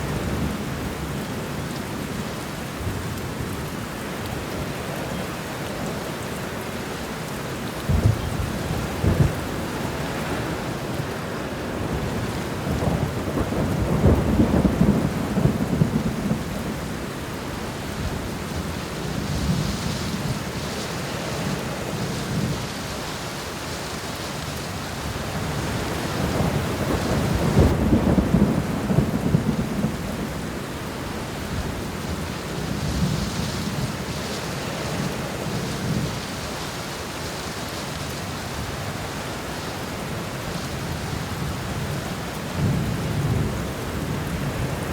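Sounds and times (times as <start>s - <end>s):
heavy rain: 0.0s - 44.9s
rolling thunder: 7.8s - 10.7s, 11.7s - 17.0s, 25.5s - 30.7s, 40.8s - 44.9s.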